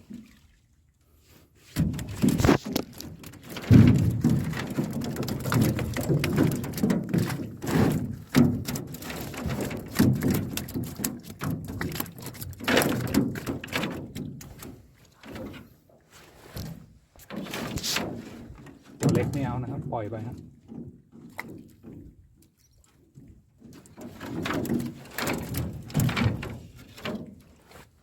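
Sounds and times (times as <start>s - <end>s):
water splashing: 0.0s - 0.9s, 1.8s - 15.5s, 16.3s - 23.2s
fish flapping against boat: 1.8s - 22.4s, 23.2s - 28.0s.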